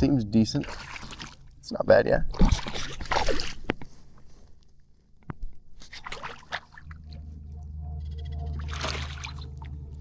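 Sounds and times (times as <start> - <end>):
low steady rumble: 6.7 - 10.0.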